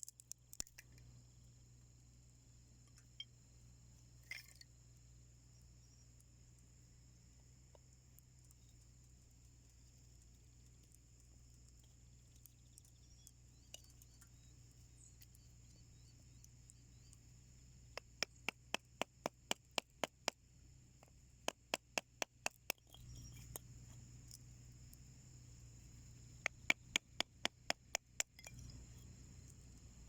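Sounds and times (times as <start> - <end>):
faint steady background noise: 0.0 - 30.0
firewood crackling in stove: 6.2 - 30.0.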